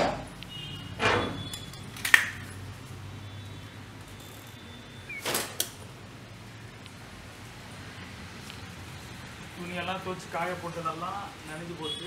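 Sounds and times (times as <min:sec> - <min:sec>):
light rain hiss: 0:02.4 - 0:12.0.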